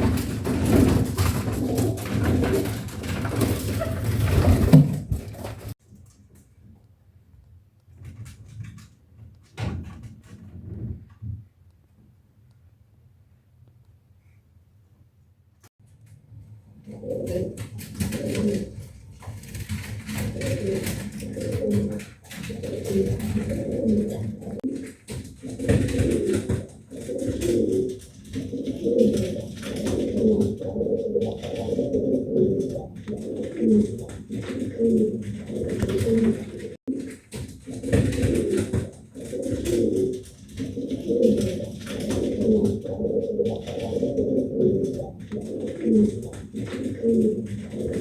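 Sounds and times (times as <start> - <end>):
pigeons cooing: 0.0 - 4.8, 16.8 - 48.0.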